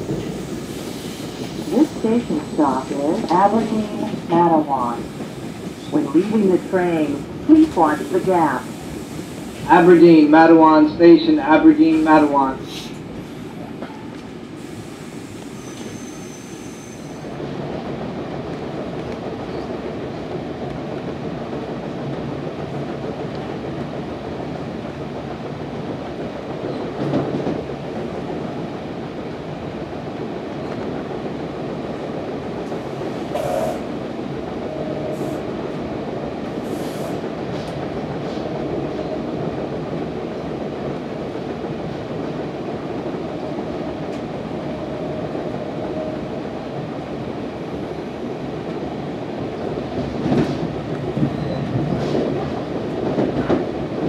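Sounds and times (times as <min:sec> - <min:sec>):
wheels rumbling on rail: 0:00.0 - 0:54.0
brief high squeaks: 0:15.6 - 0:17.2.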